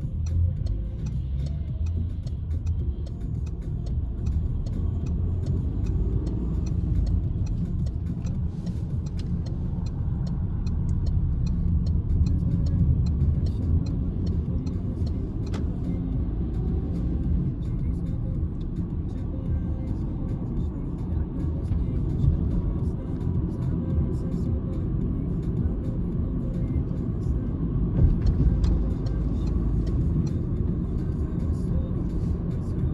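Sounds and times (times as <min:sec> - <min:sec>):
car engine and road rumble: 0:00.0 - 0:32.9
faint light ticks: 0:00.1 - 0:16.0, 0:28.2 - 0:32.7.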